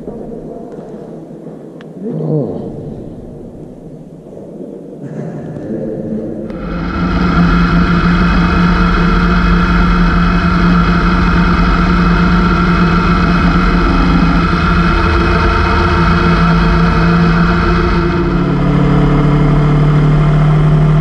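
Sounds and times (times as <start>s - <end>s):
motorcycle engine running: 6.5s - 21.0s.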